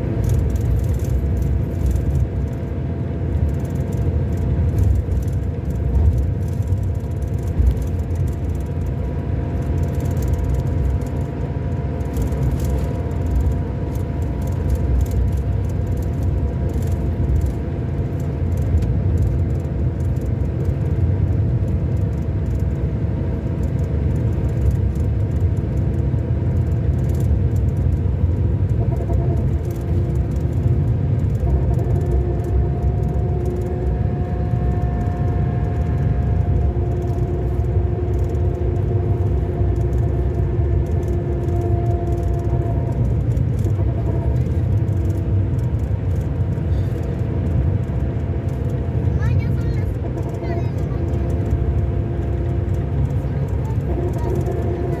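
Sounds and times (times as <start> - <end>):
coach engine rumbling: 0.0 - 55.0
light rattles: 0.2 - 55.0
steady whining tones: 27.1 - 55.0.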